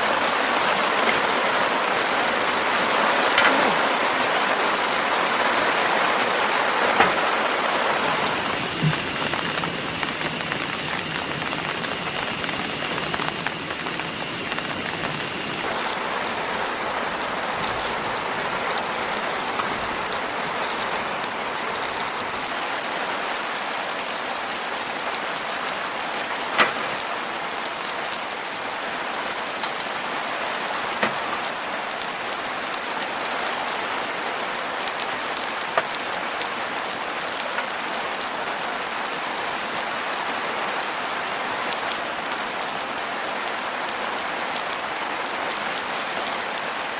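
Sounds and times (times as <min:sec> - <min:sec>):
steady rain falling: 0:00.0 - 0:46.9
sharp pops: 0:08.2 - 0:16.4.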